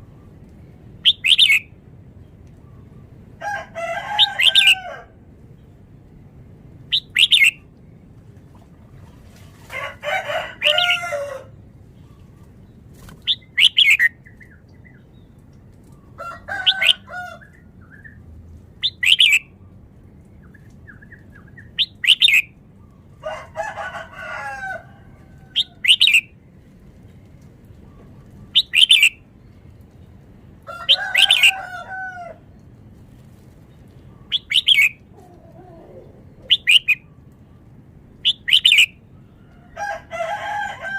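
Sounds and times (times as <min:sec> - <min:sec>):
bird warbling phrases: 0:06.9 - 0:07.6, 0:34.3 - 0:37.0.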